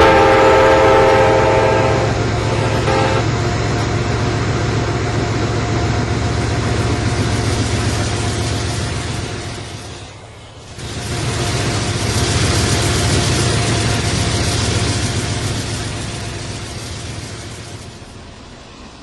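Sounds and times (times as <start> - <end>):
train horn blasts: 0.0 - 3.4
train rumbling past: 0.0 - 19.0.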